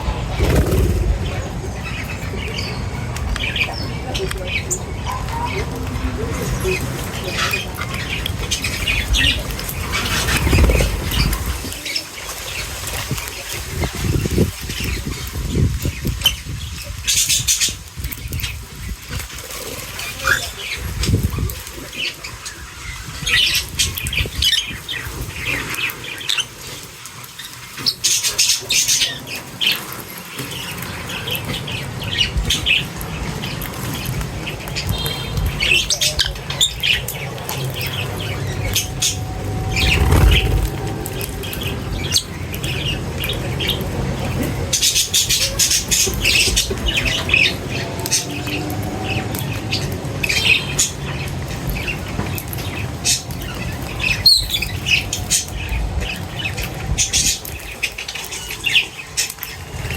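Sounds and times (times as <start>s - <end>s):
steady low rumble: 0.0s - 5.0s, 38.0s - 43.2s
birds chirping and squawking: 0.0s - 59.9s.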